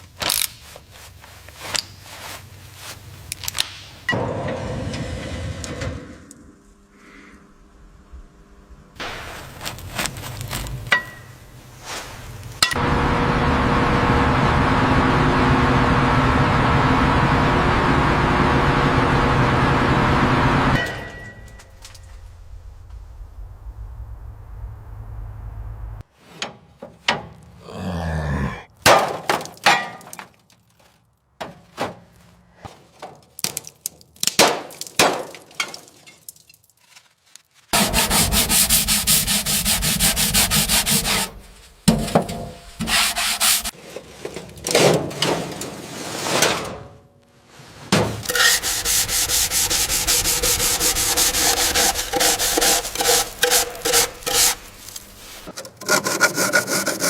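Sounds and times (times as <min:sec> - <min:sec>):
abrasive scraping and sanding: 0:37.7 - 0:44.2, 0:47.6 - 0:57.0.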